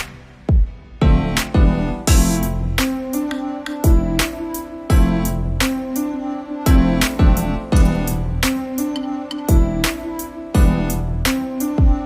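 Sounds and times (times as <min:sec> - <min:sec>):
deep thudding beat: 0:00.5 - 0:02.6, 0:04.9 - 0:05.3, 0:09.5 - 0:09.9
instrumental music held notes: 0:01.4 - 0:12.0.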